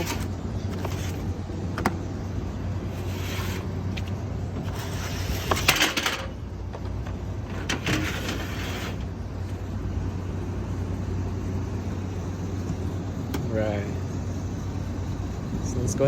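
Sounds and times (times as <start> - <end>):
air filters scraping in track: 0.0 - 2.2, 2.8 - 6.3, 7.2 - 9.7
steady low hum: 0.0 - 16.0.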